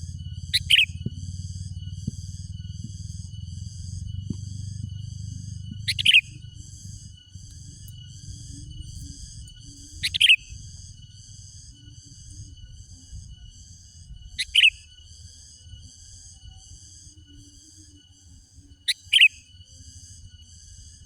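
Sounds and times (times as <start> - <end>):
bird calls: 0.0 - 11.0, 14.4 - 14.9, 18.9 - 19.5
low hum: 0.0 - 18.8
high-pitched pulsing chirr: 0.0 - 21.0.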